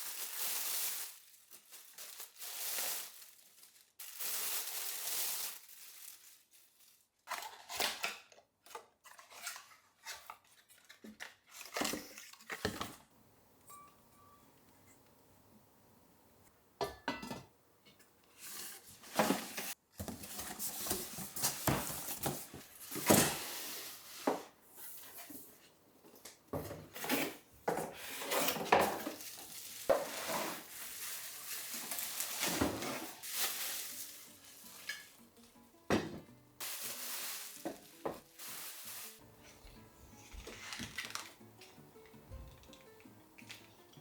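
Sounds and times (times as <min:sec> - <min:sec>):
sizzling: 0:00.0 - 0:07.1, 0:28.1 - 0:35.8, 0:36.5 - 0:39.4
pan and utensils clattering: 0:16.8 - 0:25.5, 0:26.5 - 0:35.2, 0:35.9 - 0:39.2.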